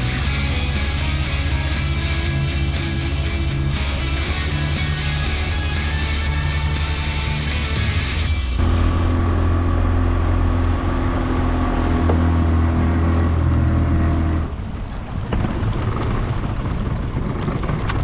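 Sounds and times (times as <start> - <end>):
motorboat engine droning: 0.0 - 17.7.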